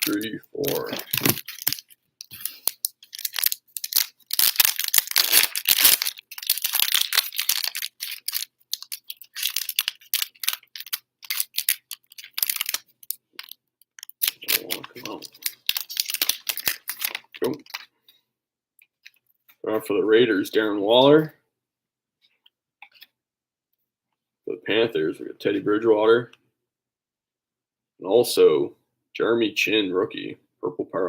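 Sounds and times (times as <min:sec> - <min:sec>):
card wrappers tearing and crinkling: 0:00.0 - 0:17.9.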